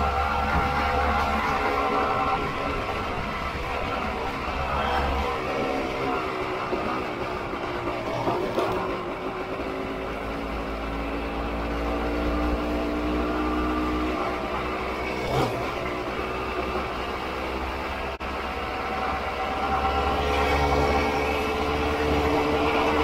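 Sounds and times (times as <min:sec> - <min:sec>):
wind rumbling on microphone: 0:00.0 - 0:05.4.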